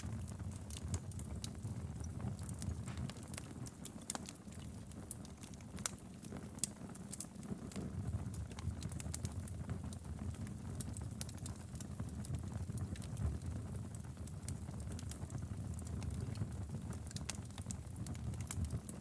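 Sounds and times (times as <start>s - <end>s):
wood fire crackling in a fireplace: 0.0s - 19.0s
sharp pops and snaps: 2.4s - 13.2s.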